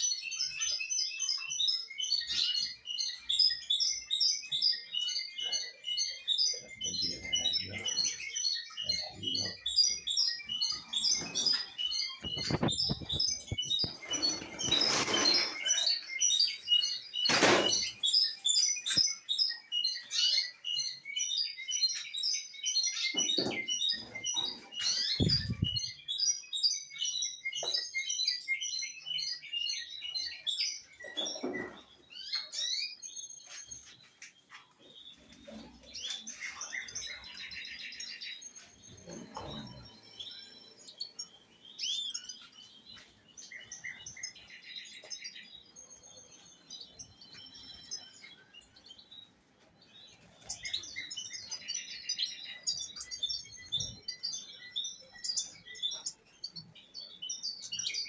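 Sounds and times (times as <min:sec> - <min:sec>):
small birds chirping: 0:00.0 - 0:58.0
knocks and rustles: 0:17.3 - 0:18.0.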